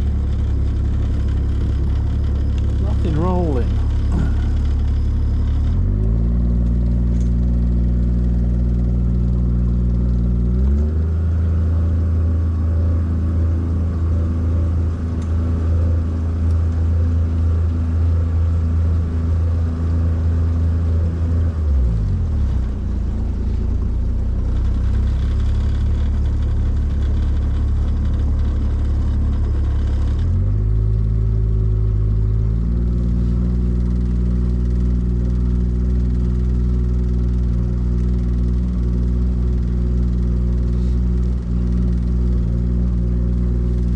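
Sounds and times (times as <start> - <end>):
boat motor running: 0.0 - 5.9.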